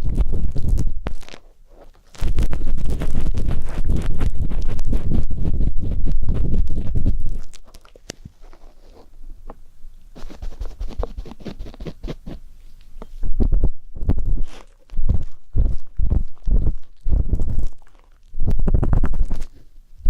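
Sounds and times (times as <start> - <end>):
ear pick scraping microphone: 0.0 - 7.6.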